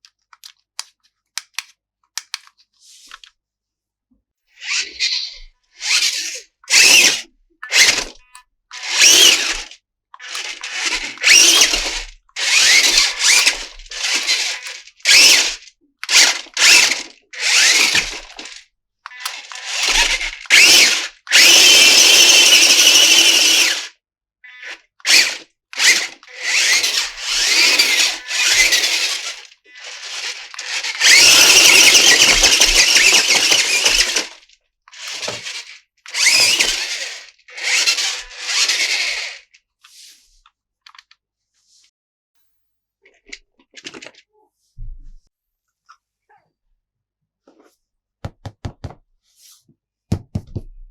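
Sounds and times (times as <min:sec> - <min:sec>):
plastic parts scraping and rustling: 0:00.0 - 0:03.4, 0:05.8 - 0:21.6, 0:25.0 - 0:41.9, 0:43.1 - 0:44.9.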